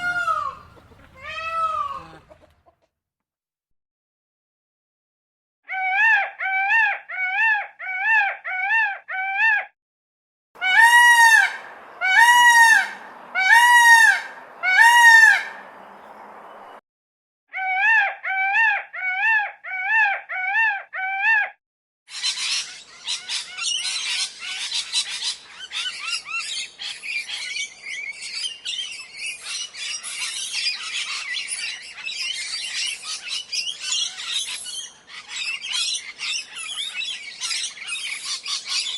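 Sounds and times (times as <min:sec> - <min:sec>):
bird loud drawn-out calls: 0:00.0 - 0:02.5, 0:10.6 - 0:16.8
small birds chirping: 0:00.0 - 0:02.5, 0:14.3 - 0:16.8, 0:22.1 - 0:38.9.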